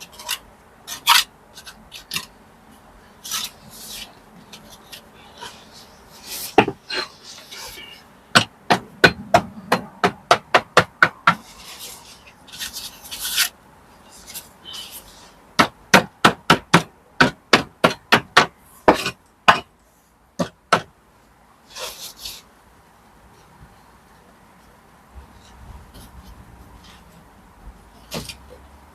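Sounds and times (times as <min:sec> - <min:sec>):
hammer knocking on masonry: 0:06.6 - 0:06.8, 0:08.3 - 0:11.4.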